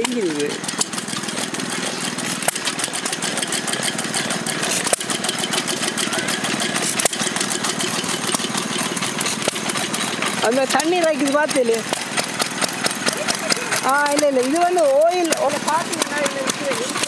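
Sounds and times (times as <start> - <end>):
stationary engine chugging: 0.0 - 17.0
sharp clicks: 2.4 - 17.0.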